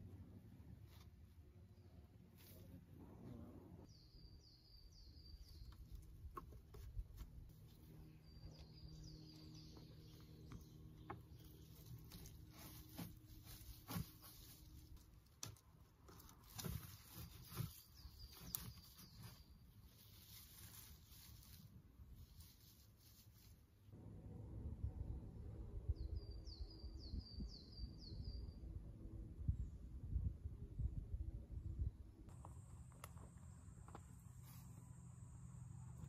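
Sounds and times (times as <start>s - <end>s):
small bird chirping: 3.8s - 6.9s, 7.7s - 14.8s, 16.4s - 21.6s.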